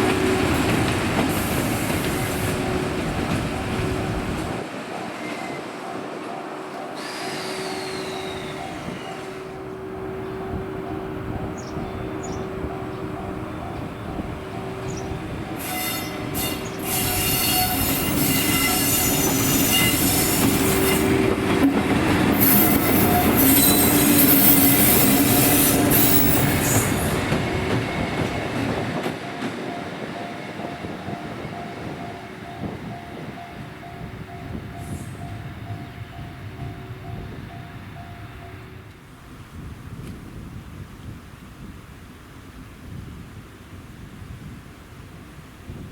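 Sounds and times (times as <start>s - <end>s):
wheels squealing on rails: 0.0s - 33.3s
freight train rolling past: 0.0s - 40.6s.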